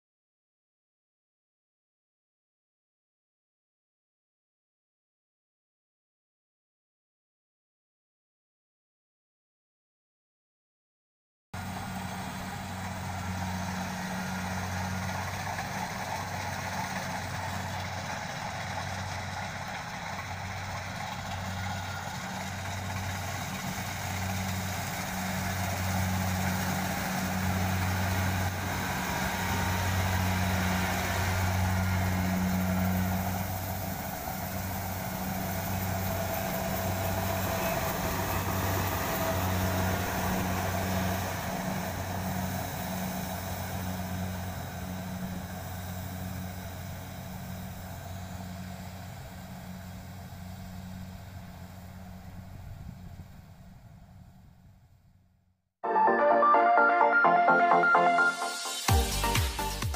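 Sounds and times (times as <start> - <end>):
combine harvester droning: 11.6 - 55.1.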